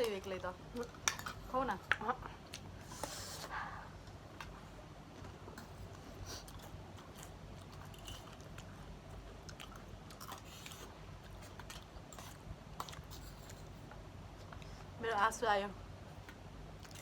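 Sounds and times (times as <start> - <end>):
chewing crunchy snacks: 5.6 - 14.8, 16.2 - 17.0.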